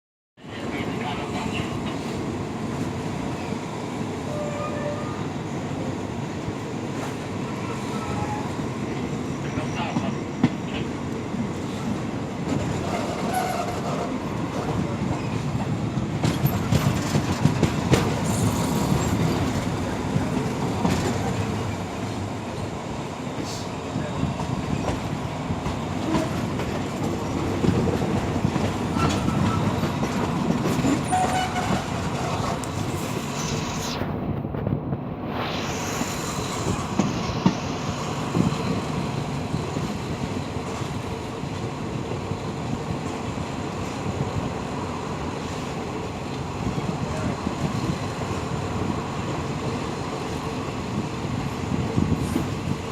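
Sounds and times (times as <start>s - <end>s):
train rumbling: 0.4s - 52.9s
train wheels clicking on rail joints: 11.6s - 22.7s, 23.4s - 33.6s.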